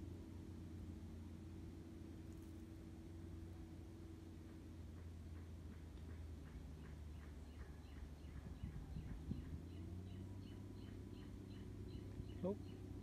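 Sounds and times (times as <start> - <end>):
low hum: 0.0 - 13.0
bird chirping rapidly: 7.1 - 13.0.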